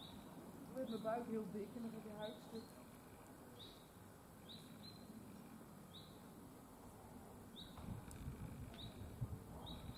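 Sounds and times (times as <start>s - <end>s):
outdoor background noise: 0.0s - 9.9s
small bird chirping: 3.5s - 5.2s, 7.5s - 7.8s.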